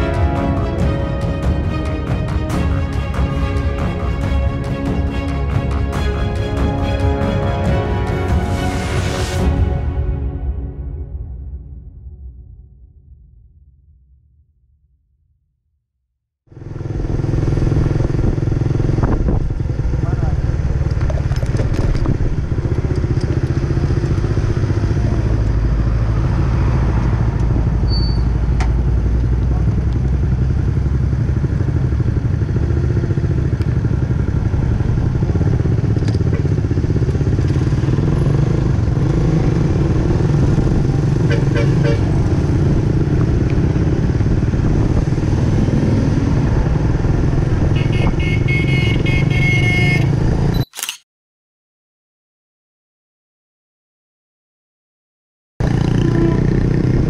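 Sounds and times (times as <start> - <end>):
vehicle horn: 0.0 - 5.6, 41.2 - 42.3, 47.6 - 50.4, 55.8 - 56.7
motor scooter engine running: 16.5 - 25.4, 28.7 - 46.0
wind rumble on microphone: 17.6 - 23.4, 42.0 - 48.4.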